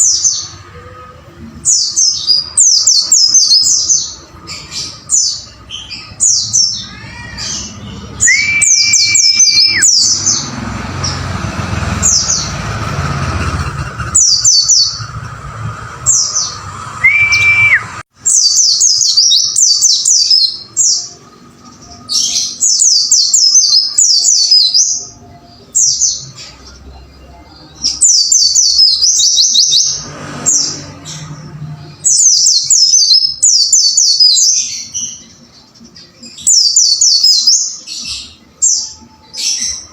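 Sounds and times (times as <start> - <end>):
birds chirping rapidly: 0.0 - 39.9
low steady whistle: 17.0 - 18.0.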